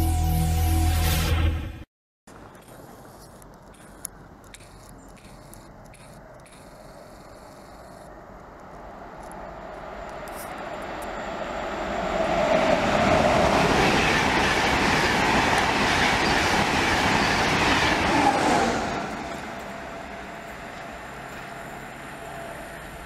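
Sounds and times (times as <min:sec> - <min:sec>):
train passing at speed: 0:08.1 - 0:23.0.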